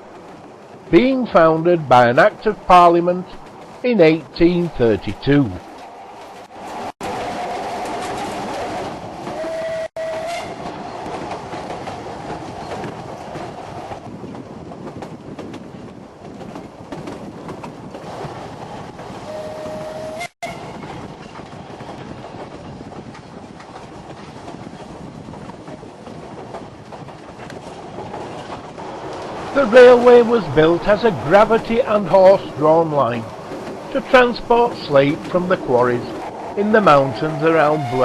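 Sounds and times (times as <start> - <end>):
train rumble and wheel clatter: 0.0 - 38.0
train whistle: 9.3 - 10.6, 19.3 - 20.8, 36.9 - 38.0.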